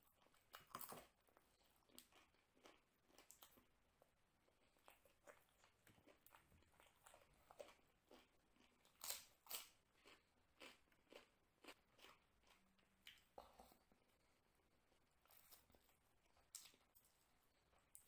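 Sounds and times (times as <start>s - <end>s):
crunchy chewing: 0.0s - 13.8s.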